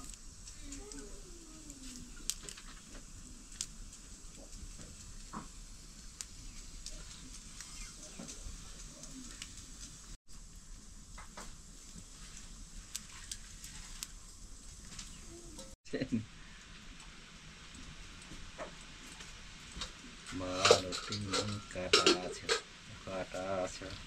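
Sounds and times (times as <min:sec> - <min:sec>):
stirring clicks: 0:00.0 - 0:10.1, 0:11.9 - 0:15.8
food sizzling in oil: 0:00.0 - 0:15.8, 0:16.4 - 0:23.8.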